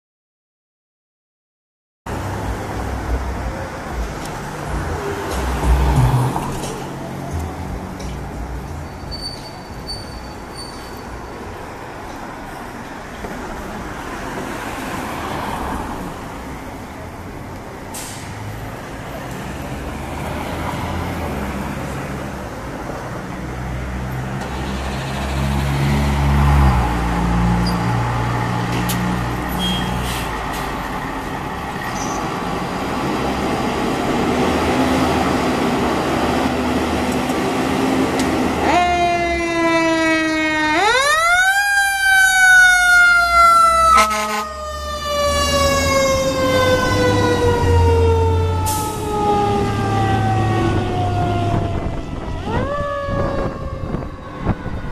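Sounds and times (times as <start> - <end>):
fire engine diesel engine pulling away: 16.5 - 22.8, 23.4 - 40.6, 41.6 - 54.9
fire engine siren: 37.8 - 54.9.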